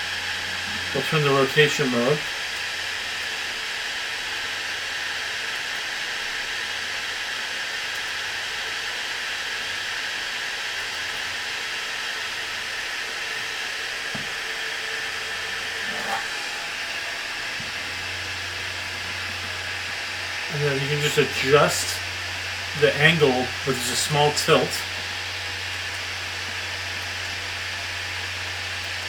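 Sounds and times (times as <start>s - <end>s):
table fan rushing air: 0.0s - 3.0s, 12.4s - 29.0s.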